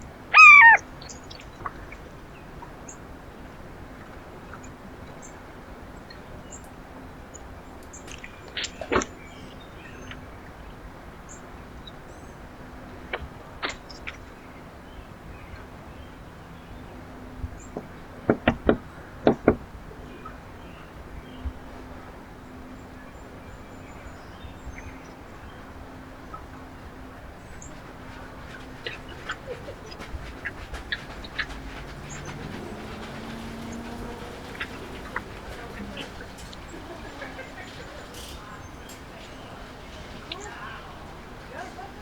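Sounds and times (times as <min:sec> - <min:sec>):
outdoor background noise: 0:00.0 - 0:42.0
small birds chirping faintly: 0:00.0 - 0:42.0
faint bird chirps: 0:00.3 - 0:03.0
outdoor hiss: 0:27.7 - 0:42.0.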